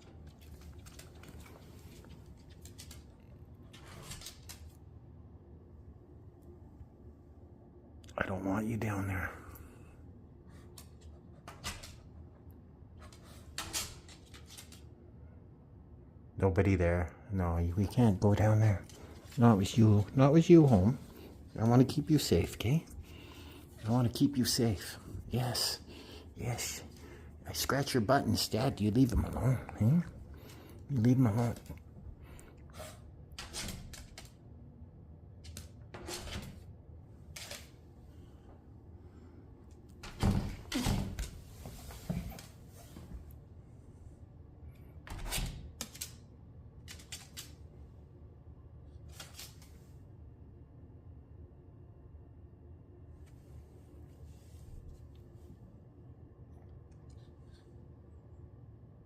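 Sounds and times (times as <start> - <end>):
soft clicks and rustles: 0.0 - 4.9.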